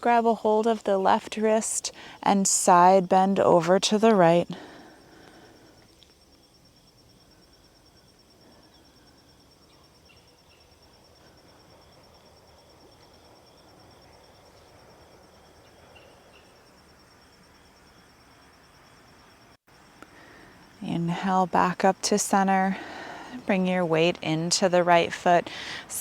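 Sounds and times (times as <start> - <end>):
pulsing insect trill: 0.1 - 26.0.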